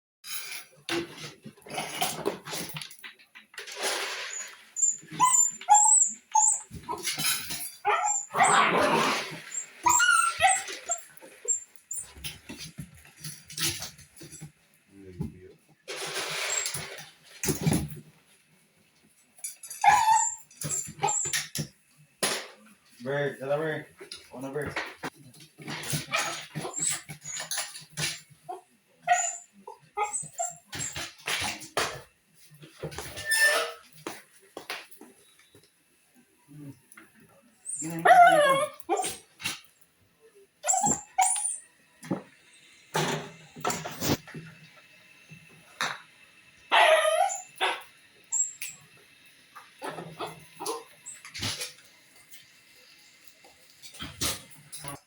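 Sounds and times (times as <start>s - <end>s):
dog whining and yipping: 4.8s - 7.1s, 7.8s - 12.2s, 19.8s - 21.4s, 29.1s - 31.0s, 37.6s - 39.2s, 40.6s - 41.6s, 46.7s - 48.7s.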